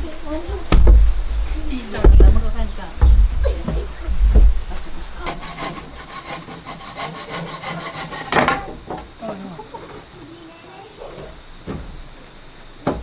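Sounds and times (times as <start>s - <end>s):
hand saw cutting wood: 4.7s - 9.2s.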